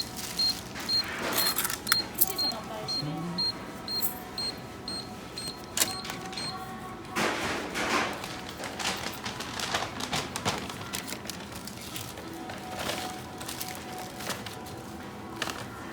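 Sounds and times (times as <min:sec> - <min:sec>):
payment machine beeping: 0:00.0 - 0:06.8.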